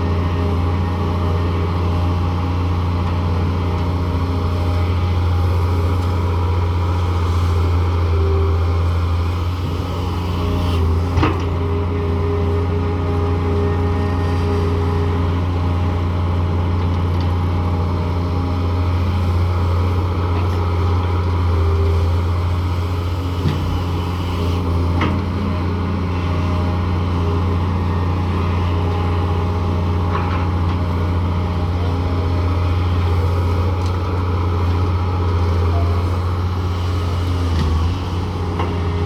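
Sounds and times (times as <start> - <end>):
excavator diesel engine running: 0.0 - 39.0
hydraulic whine: 17.8 - 39.0.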